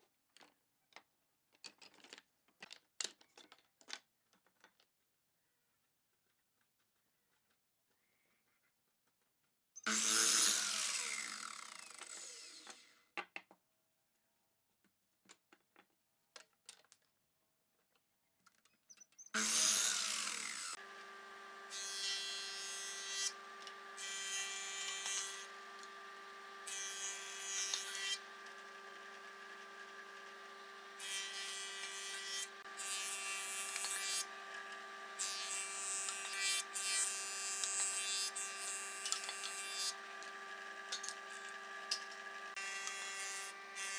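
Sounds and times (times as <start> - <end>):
power tool working wood: 9.9 - 12.9, 19.4 - 43.9.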